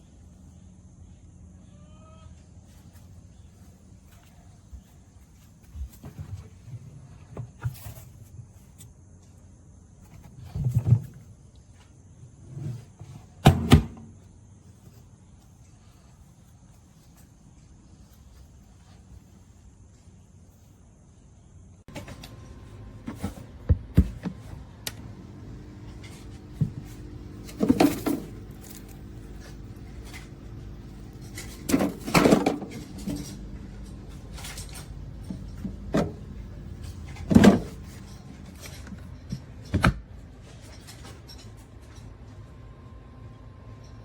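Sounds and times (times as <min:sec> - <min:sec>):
steady low hum: 0:14.0 - 0:44.0
objects knocking and clunking: 0:21.9 - 0:42.0.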